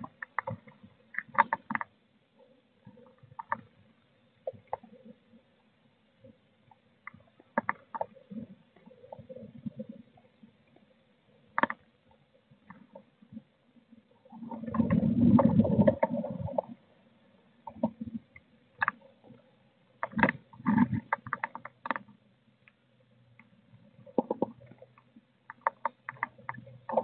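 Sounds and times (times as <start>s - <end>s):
claws tapping and scratching wood: 0.0s - 1.9s, 7.5s - 8.2s, 11.6s - 11.9s, 20.0s - 22.1s, 24.1s - 27.0s.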